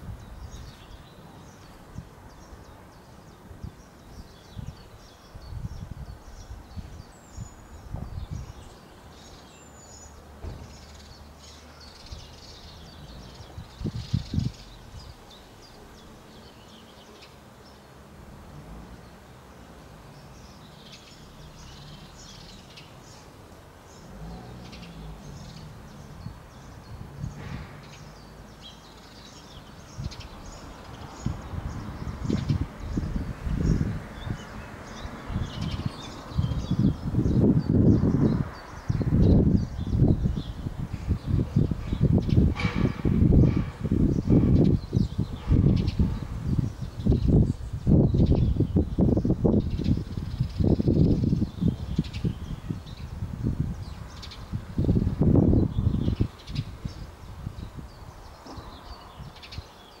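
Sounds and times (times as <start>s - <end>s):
small birds chirping: 0.0s - 60.0s
dull low thumps: 36.4s - 57.7s.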